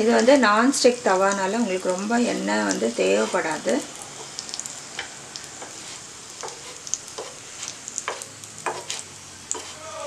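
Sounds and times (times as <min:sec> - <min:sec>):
bread sizzling in a pan: 0:00.0 - 0:10.0
wooden spatula scraping a pan: 0:02.9 - 0:04.4, 0:05.0 - 0:09.9.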